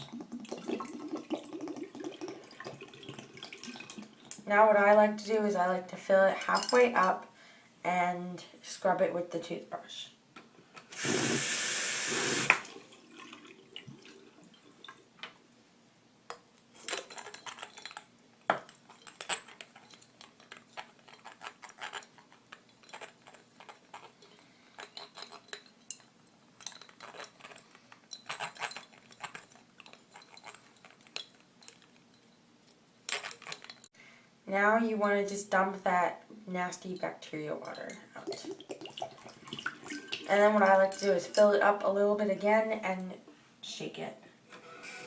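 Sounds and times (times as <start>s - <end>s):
water pouring into bottle: 0.0s - 4.3s, 11.0s - 15.0s, 38.2s - 40.5s.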